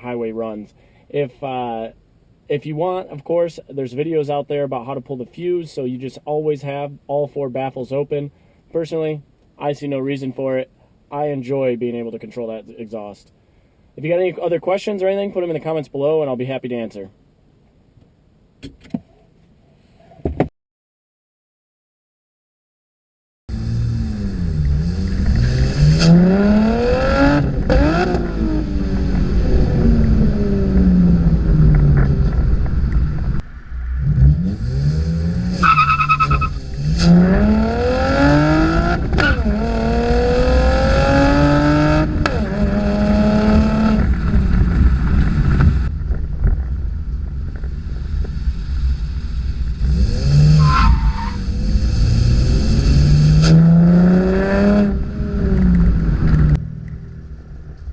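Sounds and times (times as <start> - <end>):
car engine revving: 23.5 - 46.0, 46.8 - 57.9
brief high squeal: 50.6 - 51.4.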